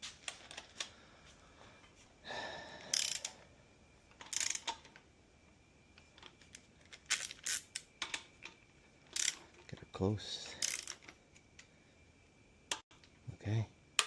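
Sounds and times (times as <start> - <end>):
socket wrench ratcheting: 2.9 - 3.4, 4.2 - 4.9, 6.9 - 8.2, 9.1 - 9.4, 10.6 - 11.2.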